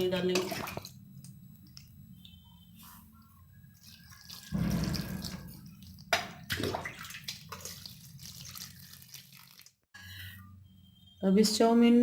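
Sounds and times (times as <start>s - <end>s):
water poured over noodles: 3.8s - 6.0s, 6.6s - 9.8s.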